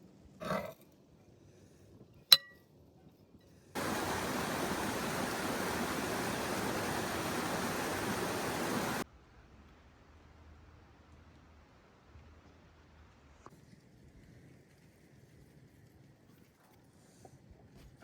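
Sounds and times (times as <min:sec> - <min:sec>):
sharp clink: 0:02.3 - 0:02.6
running water rushing: 0:03.8 - 0:09.0.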